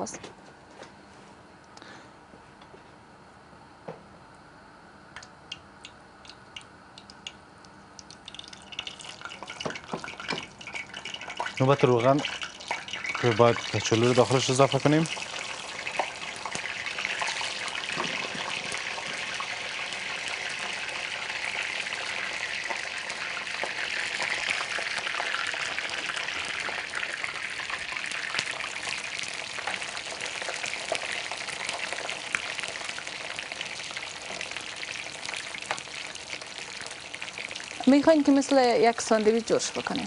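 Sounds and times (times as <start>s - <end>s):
small oil pops: 5.2s - 8.2s
potato sticks deep-frying in oil: 5.6s - 40.0s.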